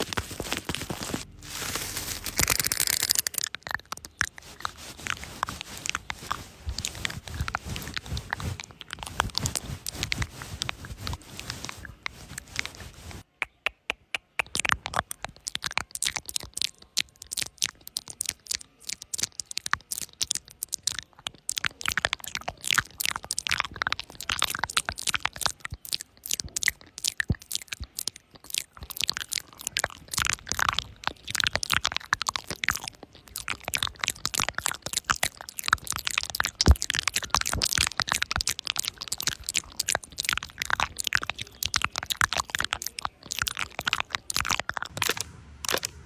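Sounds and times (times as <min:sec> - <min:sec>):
cat fur being stroked: 0:00.2 - 0:02.5, 0:04.5 - 0:13.2.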